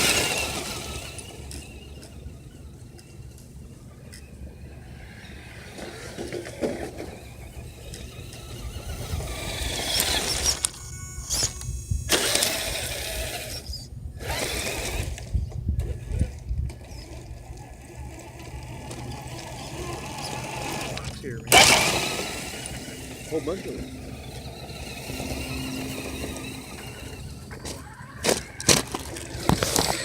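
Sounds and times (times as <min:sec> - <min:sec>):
radio-controlled car motor: 0:00.0 - 0:30.0.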